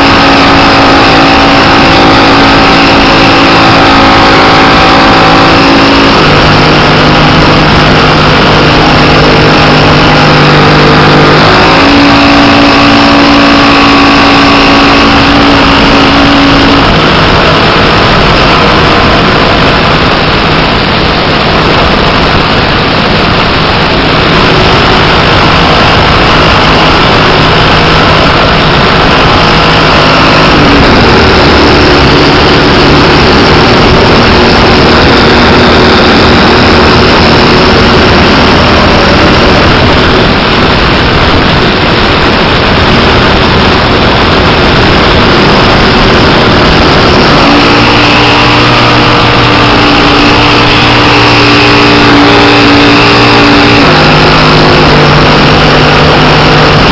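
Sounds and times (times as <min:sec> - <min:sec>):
model aircraft engine and propeller: 0:00.0 - 0:56.9
wind rush on microphone: 0:00.0 - 0:56.9.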